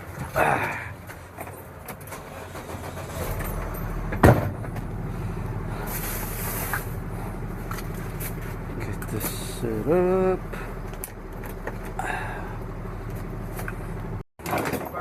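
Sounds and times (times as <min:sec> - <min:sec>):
steady low vehicle hum: 0:00.0 - 0:14.2.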